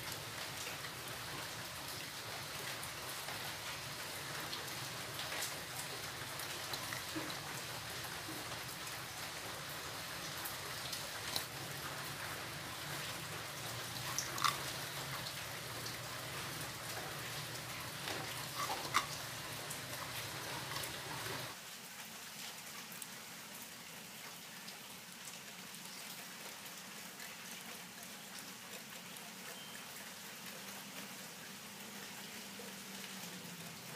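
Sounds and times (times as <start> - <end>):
egg sizzling in a frying pan: 16.6 - 21.6.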